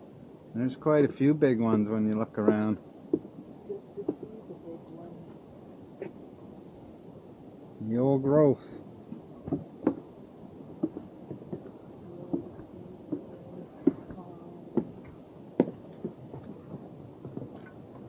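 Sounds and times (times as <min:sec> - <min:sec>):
footsteps on wooden boardwalk: 0:01.7 - 0:03.5, 0:09.1 - 0:10.1, 0:10.7 - 0:18.0.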